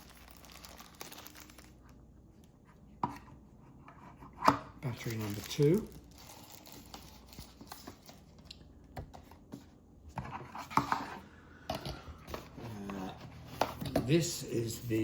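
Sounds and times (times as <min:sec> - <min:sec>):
packaging rustling: 0:00.0 - 0:02.0, 0:04.8 - 0:08.5.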